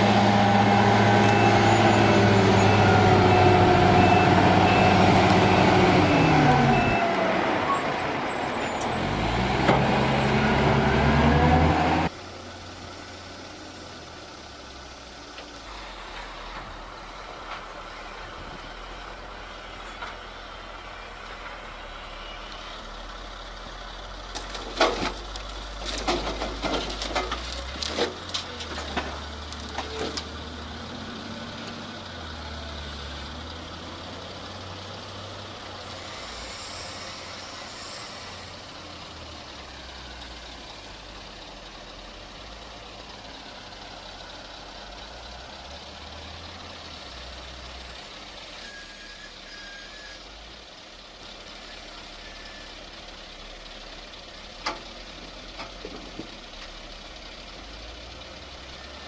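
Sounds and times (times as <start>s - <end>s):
heavy machine engine running: 0.0s - 59.0s
sharp knocks and cracks: 24.3s - 30.3s.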